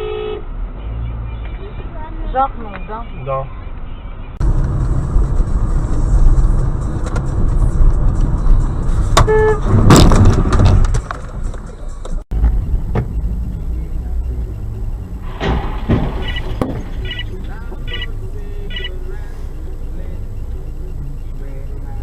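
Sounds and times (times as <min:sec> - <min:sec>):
car horn honk: 0:00.0 - 0:01.8, 0:09.2 - 0:09.9
car engine and road rumble: 0:00.0 - 0:22.0.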